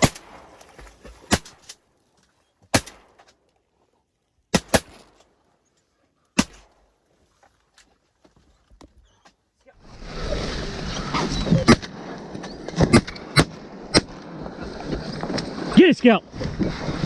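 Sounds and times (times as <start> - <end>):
shotgun blasts with echo: 0.0 - 1.7, 2.7 - 3.2, 4.5 - 5.2, 6.4 - 6.8.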